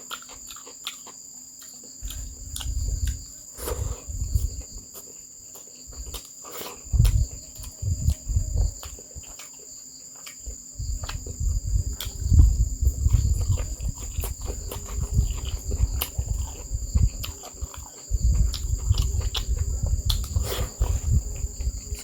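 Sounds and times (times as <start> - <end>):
person chewing and eating: 0.0 - 22.0.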